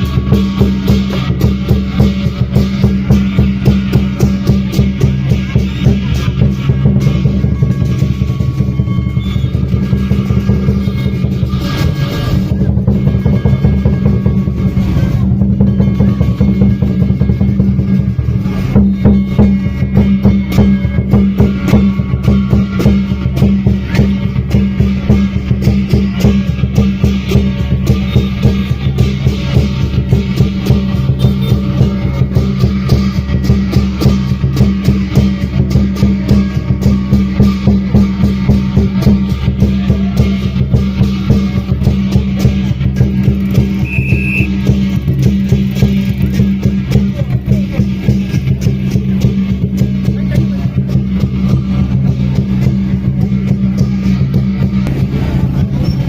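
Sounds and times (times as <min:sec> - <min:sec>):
cymbals clashing: 0:00.0 - 0:56.0
drum beating fast: 0:00.0 - 0:56.0.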